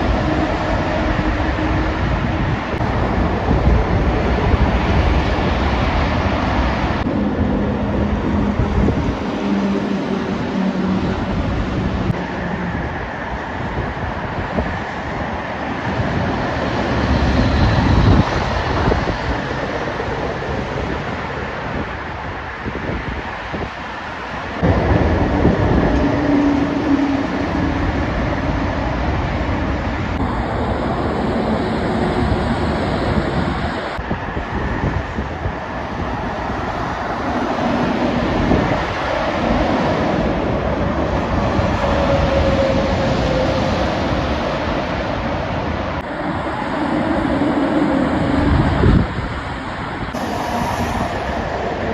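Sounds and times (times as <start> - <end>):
heavy trucks driving past: 50.1 - 51.9.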